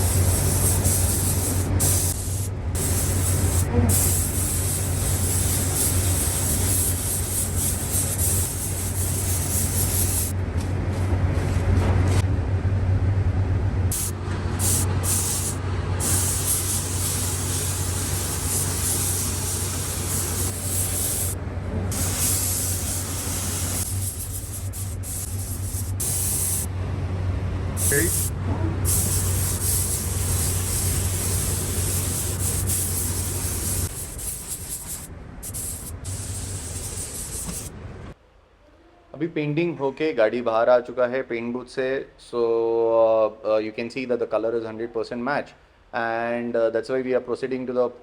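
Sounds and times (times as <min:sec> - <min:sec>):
paint spray gun hissing: 0:00.0 - 0:10.4, 0:13.9 - 0:26.7, 0:27.8 - 0:28.3, 0:28.9 - 0:37.7
steady low hum: 0:00.0 - 0:38.2.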